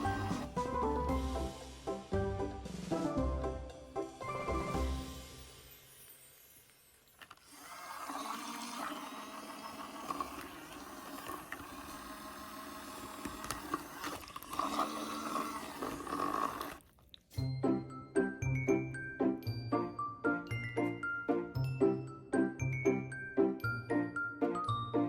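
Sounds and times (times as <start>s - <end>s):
small motor humming: 7.2s - 16.8s
water churning: 7.7s - 16.8s.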